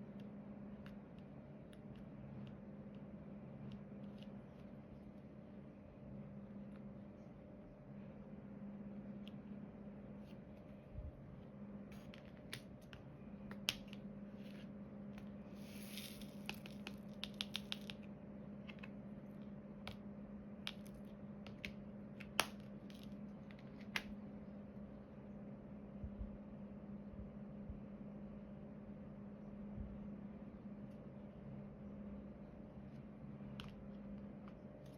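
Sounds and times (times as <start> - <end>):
steady low hum: 0.0 - 34.9
drill pen clicks and taps: 16.5 - 18.0, 20.7 - 20.9.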